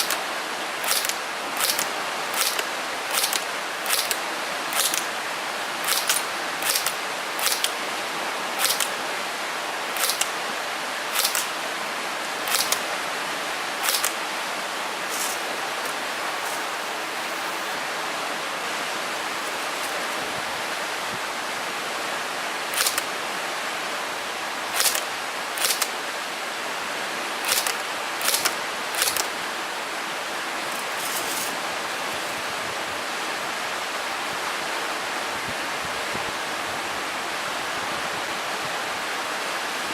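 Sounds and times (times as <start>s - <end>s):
steady hiss: 0.0s - 39.9s
airsoft gun shots clicking: 0.8s - 5.1s, 5.8s - 7.8s, 8.6s - 9.0s, 10.0s - 10.3s, 11.1s - 11.6s, 12.5s - 12.8s, 13.8s - 14.2s, 24.8s - 25.9s, 27.5s - 29.3s.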